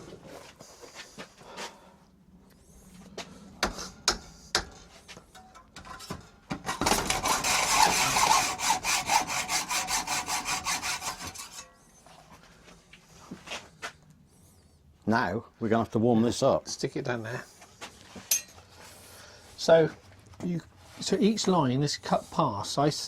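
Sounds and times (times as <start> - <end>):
hand tool rasping over metal: 6.7 - 11.8.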